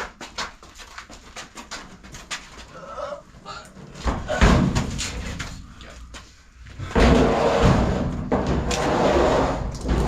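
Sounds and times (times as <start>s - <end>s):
knocks and clatter: 6.9s - 10.0s
clothes dryer scraping and rumbling: 7.0s - 10.0s.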